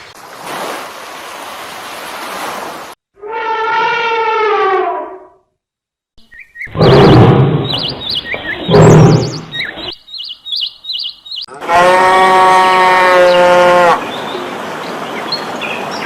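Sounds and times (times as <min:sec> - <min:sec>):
long steady animal call: 0:03.2 - 0:05.2, 0:11.2 - 0:14.5
birds chirping in trills: 0:06.2 - 0:11.6, 0:13.0 - 0:16.0.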